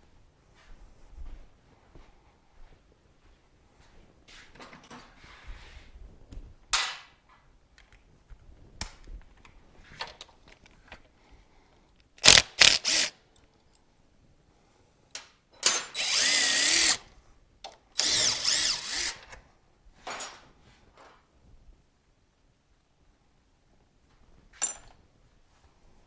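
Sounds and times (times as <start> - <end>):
power drill motor whine: 12.2 - 13.1, 16.0 - 17.0, 18.0 - 19.4.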